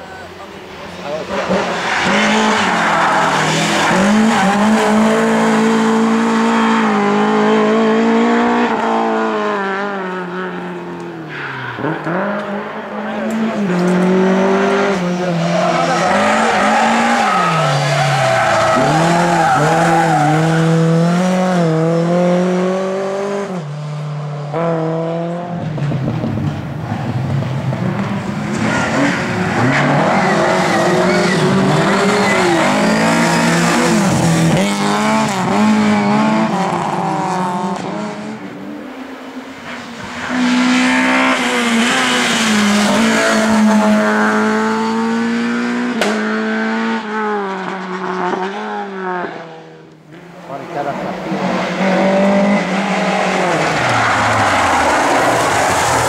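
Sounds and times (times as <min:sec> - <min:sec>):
racing car engines revving: 0:00.0 - 0:56.0.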